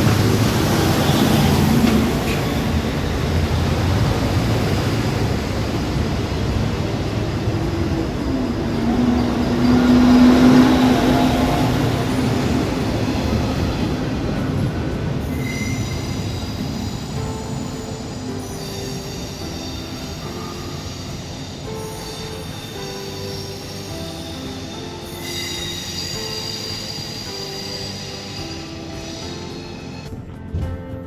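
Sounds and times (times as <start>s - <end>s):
train rumbling on rails: 0.0s - 31.0s.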